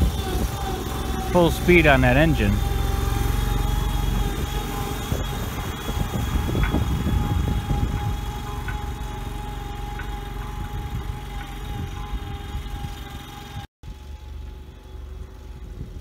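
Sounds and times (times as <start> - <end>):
backhoe engine running: 0.0 - 16.0
steady whine: 0.0 - 16.0.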